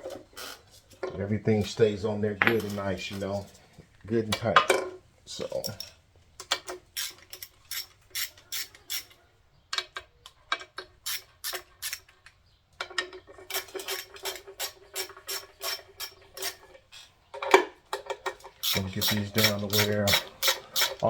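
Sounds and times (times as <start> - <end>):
hand ratchet clicking: 18.6 - 21.0.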